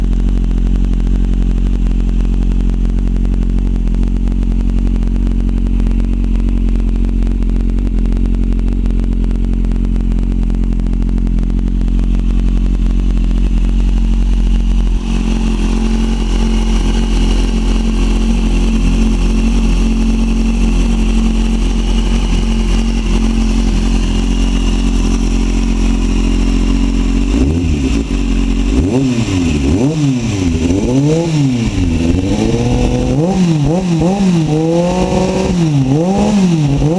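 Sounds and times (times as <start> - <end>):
motorcycle engine idling and revving: 0.0 - 36.9.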